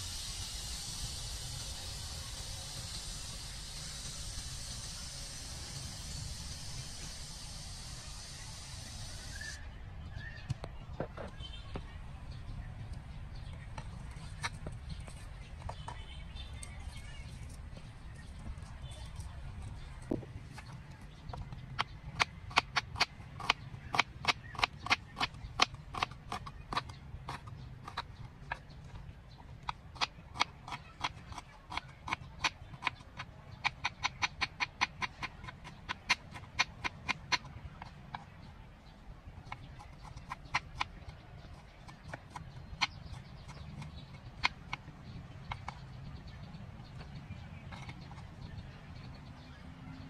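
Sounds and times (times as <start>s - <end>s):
steady low hum: 0.0s - 50.0s
sharp irregular clicks: 20.6s - 28.8s, 29.6s - 38.4s, 39.4s - 46.0s
sharp clicks: 29.6s - 38.2s.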